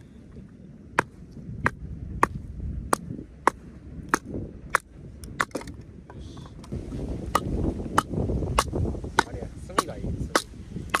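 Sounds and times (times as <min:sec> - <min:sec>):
axe splitting log: 0:00.9 - 0:05.8, 0:07.2 - 0:11.0.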